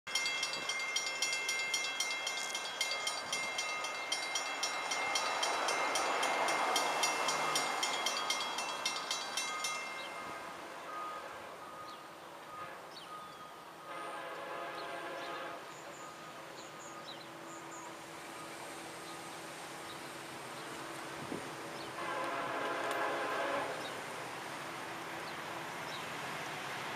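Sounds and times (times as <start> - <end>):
train wheels clicking over rail joints: 0.1 - 10.1, 20.6 - 24.0.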